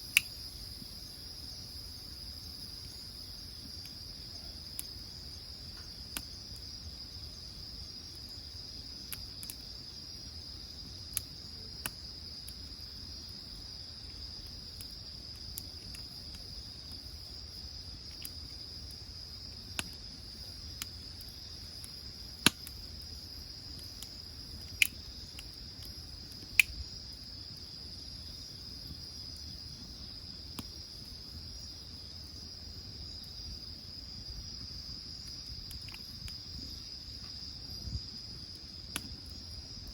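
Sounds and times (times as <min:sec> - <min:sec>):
wood fire popping and crackling: 0:00.0 - 0:31.4, 0:34.5 - 0:39.9
insects trilling: 0:00.0 - 0:39.9.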